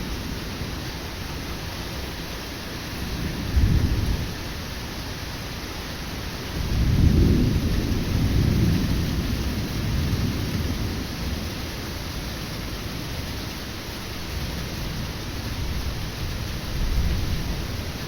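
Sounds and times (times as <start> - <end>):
heavy rain: 0.0 - 18.0
thunder rumbling: 3.0 - 4.4, 6.6 - 11.6.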